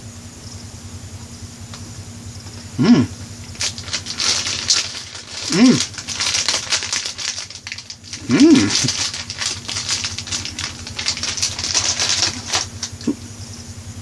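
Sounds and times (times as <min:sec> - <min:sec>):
person humming: 0:02.8 - 0:03.2, 0:05.4 - 0:06.0, 0:08.2 - 0:09.0, 0:13.0 - 0:13.2.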